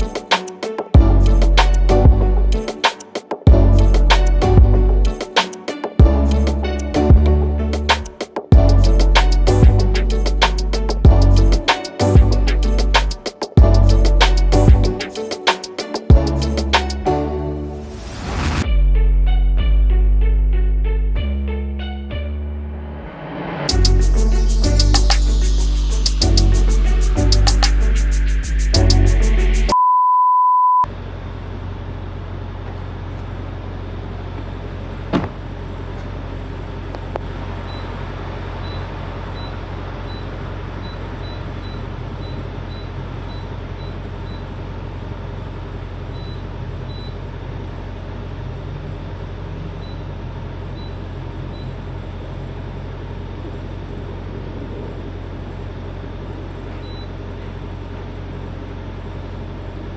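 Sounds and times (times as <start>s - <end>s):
truck engine and road drone: 1.0s - 2.6s, 3.6s - 5.2s, 6.0s - 15.0s, 16.2s - 29.8s, 30.9s - 59.9s
steady beep: 29.6s - 30.9s.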